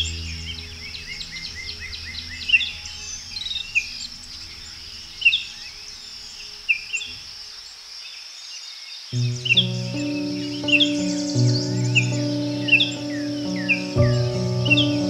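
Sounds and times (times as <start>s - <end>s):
soft background music: 0.0s - 6.9s, 9.2s - 15.0s
birds chirping and calling: 9.2s - 15.0s.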